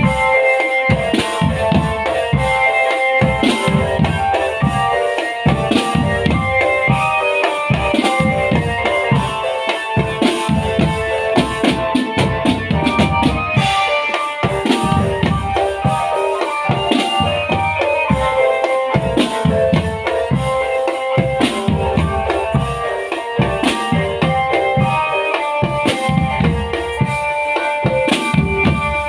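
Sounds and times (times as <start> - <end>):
bass drums: 0.0 - 9.4, 10.0 - 16.1, 16.7 - 27.2, 27.9 - 29.0
snare drums: 0.0 - 29.0
sustained melody line: 0.0 - 29.0.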